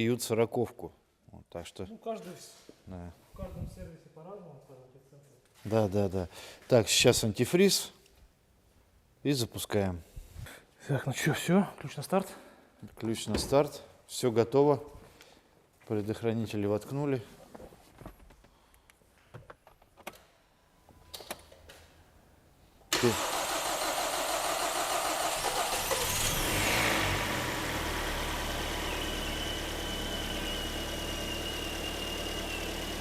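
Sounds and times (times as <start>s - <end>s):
car engine starting and idling: 22.9s - 33.0s
faint high whistle: 28.8s - 32.8s.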